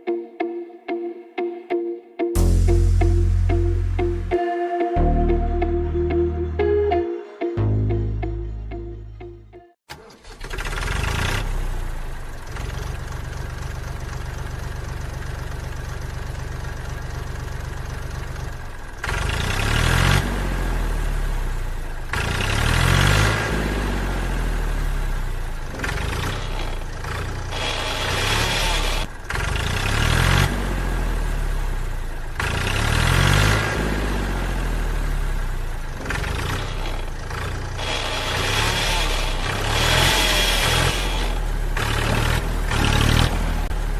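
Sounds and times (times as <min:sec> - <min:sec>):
tractor engine idling and revving: 0:09.9 - 0:43.9.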